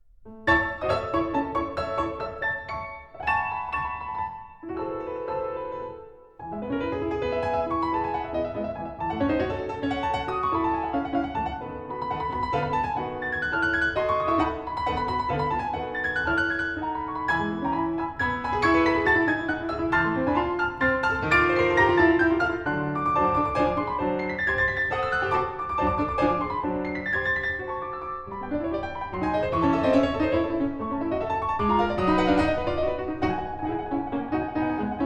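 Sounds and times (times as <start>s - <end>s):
piano melody over chords: 0.0s - 35.0s.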